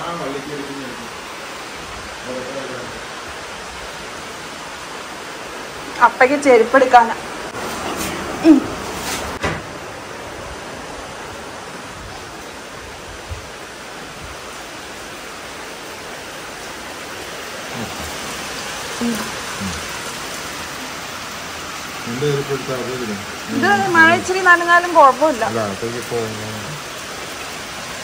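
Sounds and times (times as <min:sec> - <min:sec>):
steady rain: 0:00.0 - 0:28.0
faint voices: 0:17.7 - 0:18.2, 0:19.0 - 0:19.9, 0:22.1 - 0:24.8.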